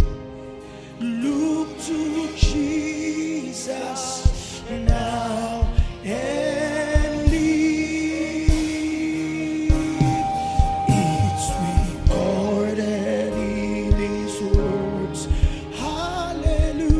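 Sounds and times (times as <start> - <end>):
low drum beats: 6.9 - 7.8, 8.4 - 12.6, 13.9 - 16.9
person singing long wavering notes: 9.2 - 12.7.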